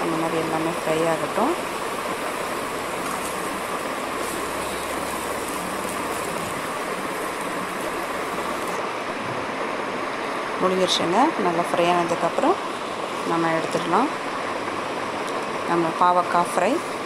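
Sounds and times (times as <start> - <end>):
vegetable slices sizzling in oil: 0.0 - 8.8.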